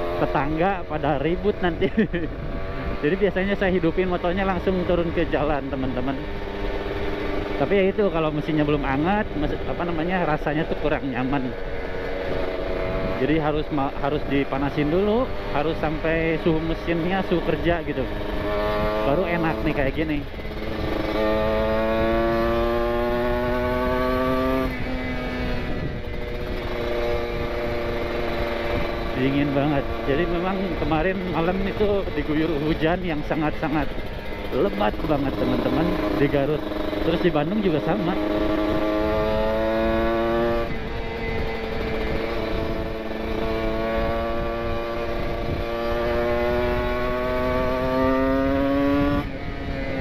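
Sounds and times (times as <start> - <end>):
motorcycle engine revving: 0.0 - 50.0
wind rumble on microphone: 0.7 - 6.3, 12.2 - 14.5, 15.2 - 34.6, 35.6 - 50.0.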